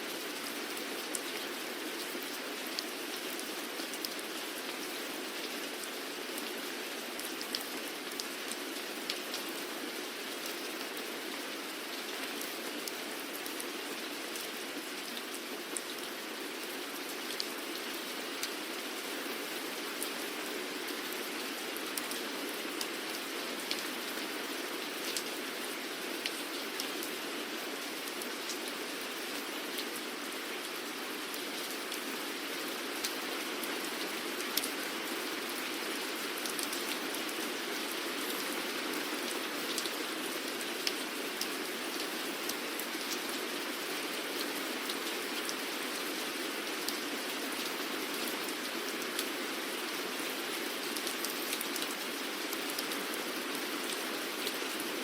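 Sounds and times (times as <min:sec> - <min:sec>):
raindrops ticking on a surface: 0:00.2 - 0:19.0, 0:36.0 - 0:49.4, 0:50.3 - 0:54.8.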